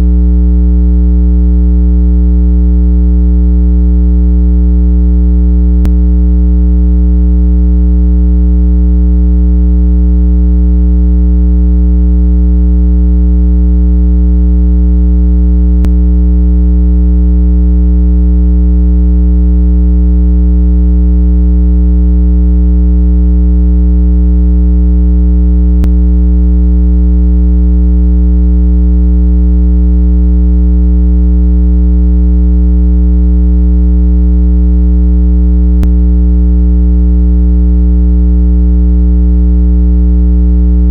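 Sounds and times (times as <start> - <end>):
low electronic tone: 5.6 - 7.1, 15.6 - 16.6, 25.8 - 26.0, 35.8 - 36.0.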